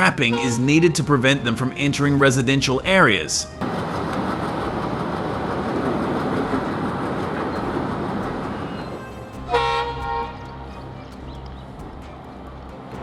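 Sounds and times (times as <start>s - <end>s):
train horn blast: 0.0s - 1.1s, 8.4s - 10.8s
train rumbling by: 3.5s - 13.0s.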